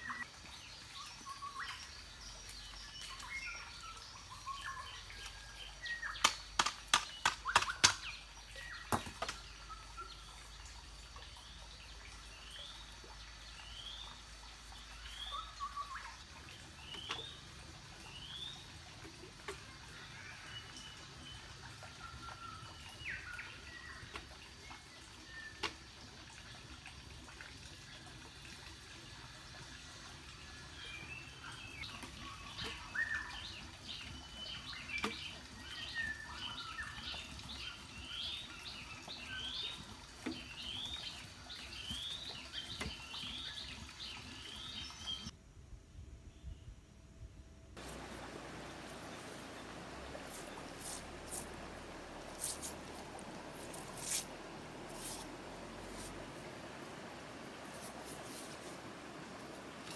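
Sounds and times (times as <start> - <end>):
birds chirping: 47.8 - 59.9.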